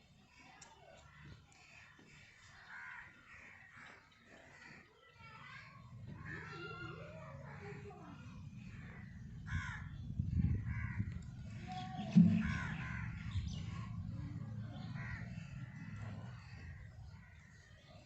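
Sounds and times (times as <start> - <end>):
crows cawing: 1.0 - 4.8, 6.1 - 18.0
low rumble: 8.4 - 17.2
knock: 12.0 - 12.8.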